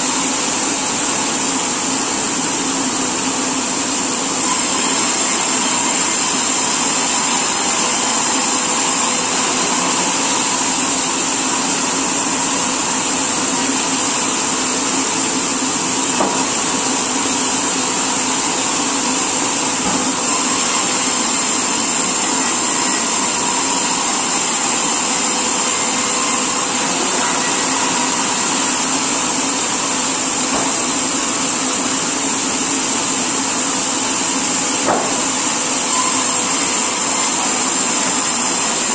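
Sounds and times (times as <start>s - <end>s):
sawmill machinery running: 0.0s - 38.9s
high mechanical whine: 4.7s - 32.6s.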